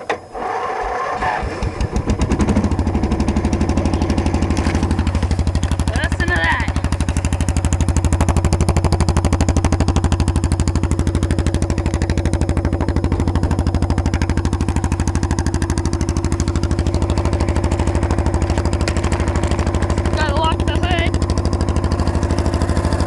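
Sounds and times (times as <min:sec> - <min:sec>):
lawn tractor engine popping: 0:00.0 - 0:23.0.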